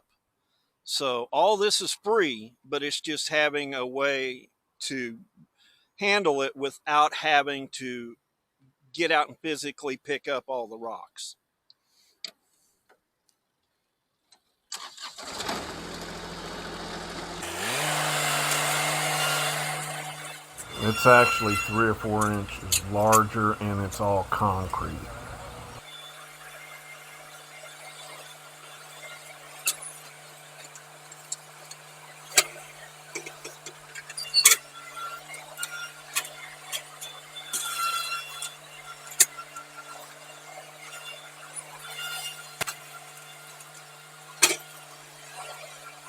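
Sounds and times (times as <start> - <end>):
tractor engine starting and revving: 14.8 - 25.8
steady low hum: 20.6 - 25.8.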